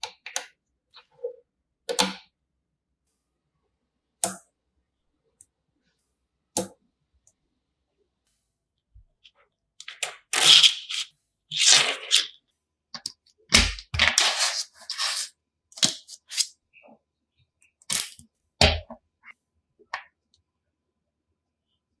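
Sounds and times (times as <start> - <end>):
short scrapes: 14.1 - 15.3.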